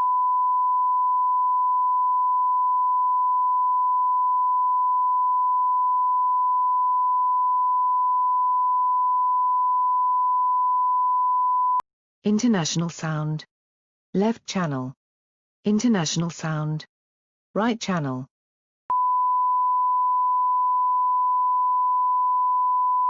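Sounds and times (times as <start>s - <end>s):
steady sine-wave test tone: 0.0s - 11.8s, 18.9s - 23.0s.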